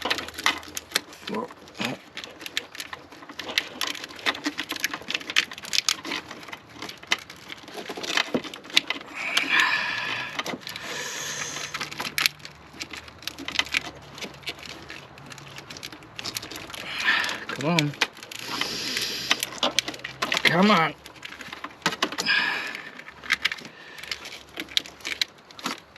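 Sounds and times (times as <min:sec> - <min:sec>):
plastic and rubber clicks and knocks: 0:00.0 - 0:10.9, 0:11.5 - 0:25.9
hose scraping rub: 0:09.0 - 0:12.1, 0:18.4 - 0:19.7.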